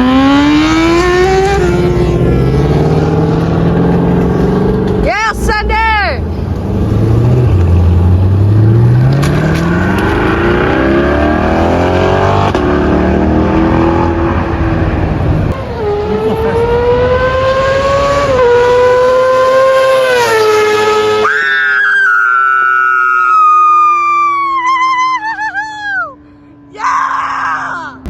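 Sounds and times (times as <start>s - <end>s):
car engine accelerating: 0.0s - 21.3s.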